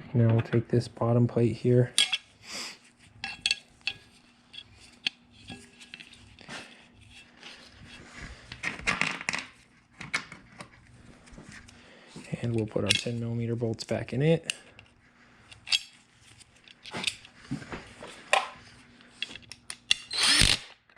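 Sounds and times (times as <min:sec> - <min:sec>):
metal parts clinking and knocking: 0:02.0 - 0:02.3.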